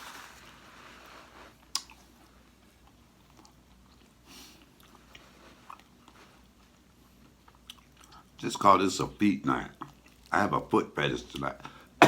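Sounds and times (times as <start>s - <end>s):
person chewing chicken feet: 1.7s - 2.2s, 2.8s - 8.4s, 9.8s - 10.3s.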